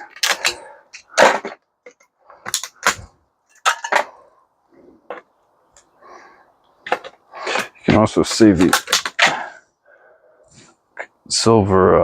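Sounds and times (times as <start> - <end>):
metal parts and tools clanking: 0.0 - 4.3, 6.8 - 9.6.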